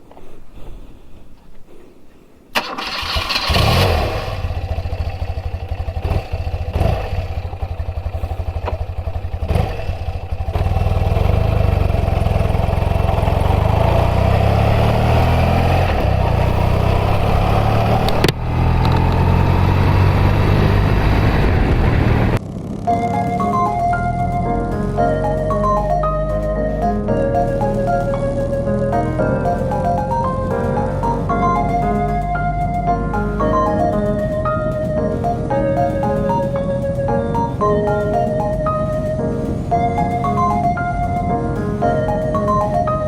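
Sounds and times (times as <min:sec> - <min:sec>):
electric starter cranking: 0:02.6 - 0:05.0
motorcycle engine running: 0:03.0 - 0:23.1.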